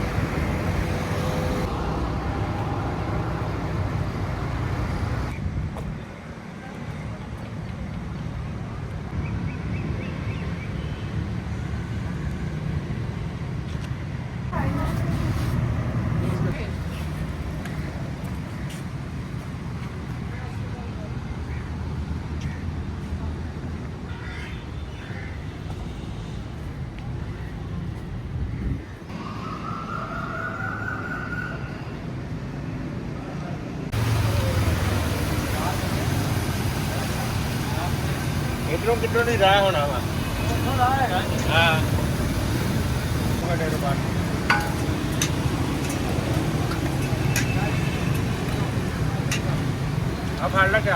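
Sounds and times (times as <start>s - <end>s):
street traffic rumble: 0.0s - 50.9s
wind noise: 27.2s - 29.2s
vehicle motor rumble: 33.9s - 50.9s.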